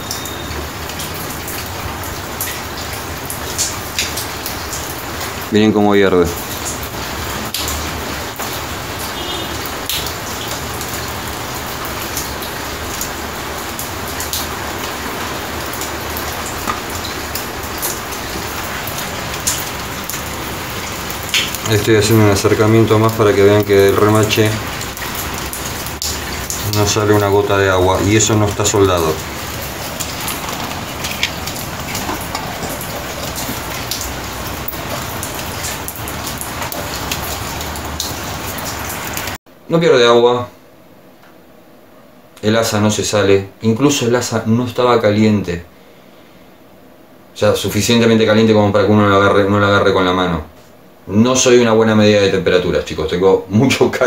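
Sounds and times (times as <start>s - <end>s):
sharp raindrops landing close: 0.0s - 39.4s
steady rain on wet paving: 0.0s - 39.4s.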